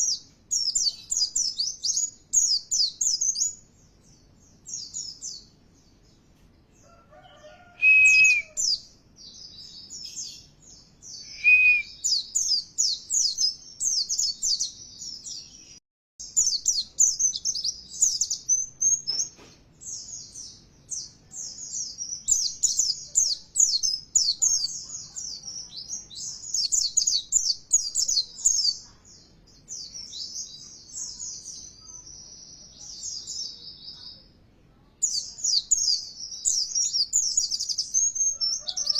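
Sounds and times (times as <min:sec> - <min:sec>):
high bird twittering: 0:07.4 - 0:08.8
clear whistled bird notes: 0:07.8 - 0:08.7, 0:11.2 - 0:12.3.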